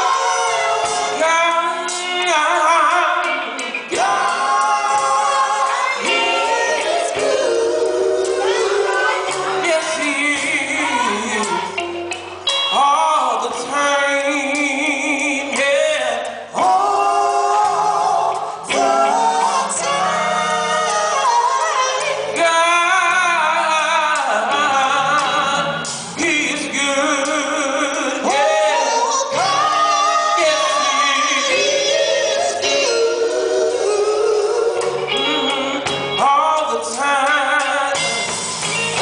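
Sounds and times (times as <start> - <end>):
gospel group singing in harmony: 0.0 - 39.0.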